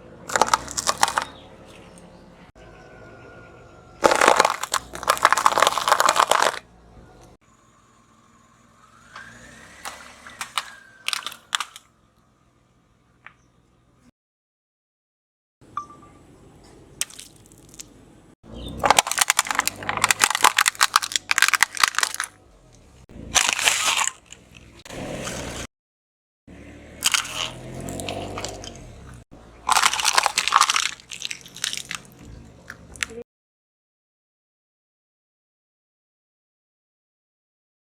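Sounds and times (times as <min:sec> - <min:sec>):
objects crunching under car tyre: 0:00.3 - 0:02.2, 0:04.0 - 0:07.3, 0:09.1 - 0:11.9, 0:18.5 - 0:25.7, 0:26.9 - 0:33.2.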